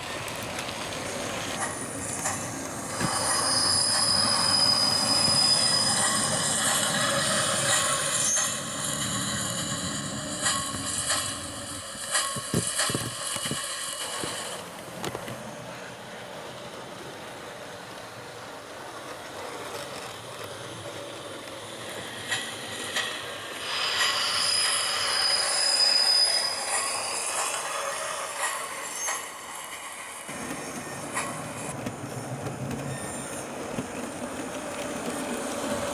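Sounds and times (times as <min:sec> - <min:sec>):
model train running through small speaker: 0:00.0 - 0:35.9
high brake squeal: 0:01.6 - 0:14.6, 0:22.2 - 0:31.7, 0:32.8 - 0:33.7.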